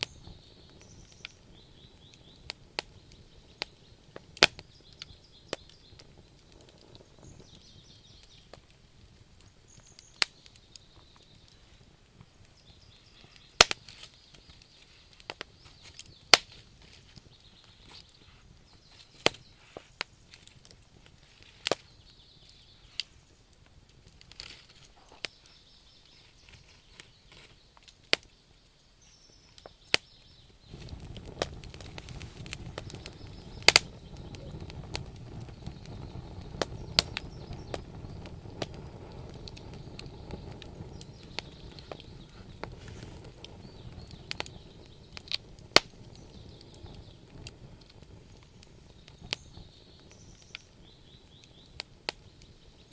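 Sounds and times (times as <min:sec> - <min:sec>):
campfire crackling and popping: 0:00.0 - 0:52.9.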